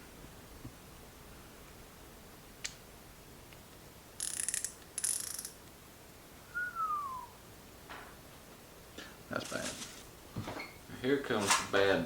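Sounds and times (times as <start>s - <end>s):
rapid ratcheting clicks: 4.2s - 5.6s.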